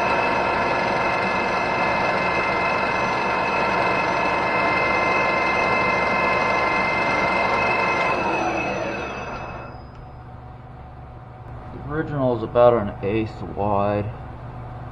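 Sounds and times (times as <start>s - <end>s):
metal lathe running: 0.0s - 10.4s.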